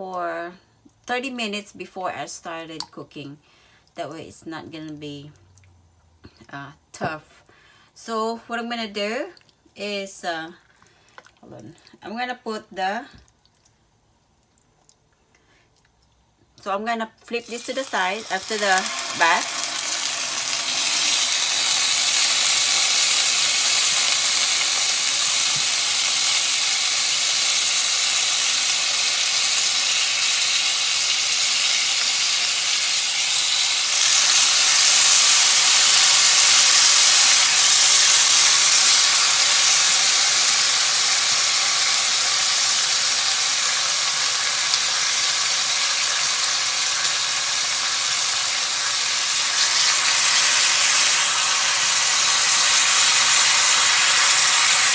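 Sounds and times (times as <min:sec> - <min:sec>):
chicken sizzling in hot oil: 0:17.3 - 0:54.9.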